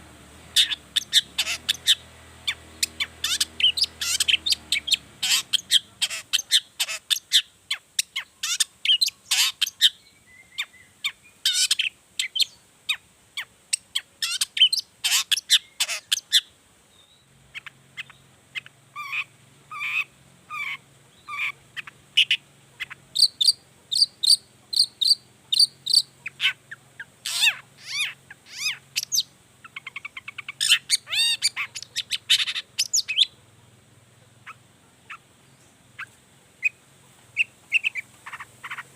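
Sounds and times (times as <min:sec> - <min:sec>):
shrike singing sharp chirps: 0:00.5 - 0:07.5, 0:17.5 - 0:33.4.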